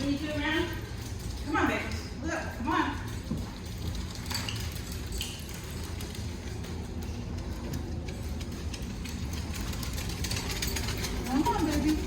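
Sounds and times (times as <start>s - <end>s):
dog claws clicking on hard floor: 0.0s - 12.0s
handheld camera rumble: 3.2s - 12.0s.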